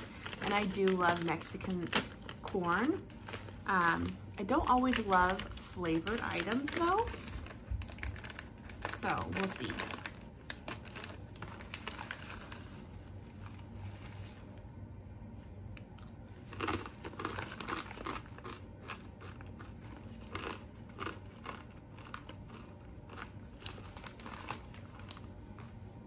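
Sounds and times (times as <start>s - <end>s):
person crunching corn nuts: 4.7s - 13.7s, 15.8s - 26.0s.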